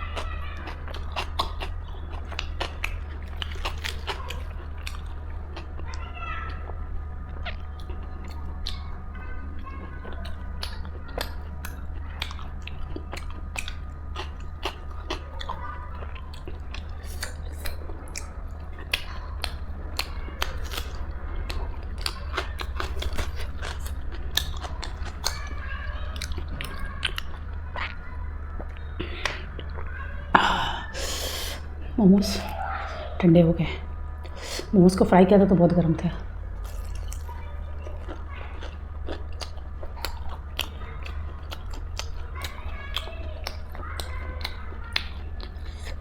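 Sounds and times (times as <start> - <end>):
person chewing and biting: 0.0 - 6.0, 10.0 - 25.5, 26.2 - 29.8, 36.6 - 46.0
food crunching: 0.0 - 33.2, 36.0 - 46.0
low hum: 0.0 - 46.0.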